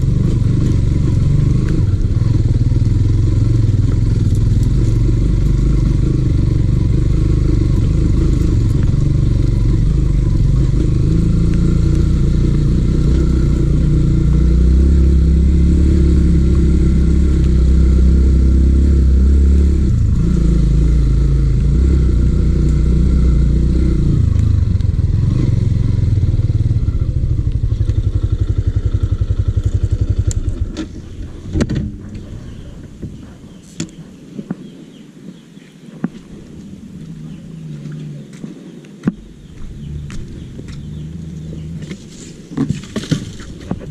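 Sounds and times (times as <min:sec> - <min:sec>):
motorcycle engine running: 0:00.0 - 0:34.1, 0:39.1 - 0:43.9.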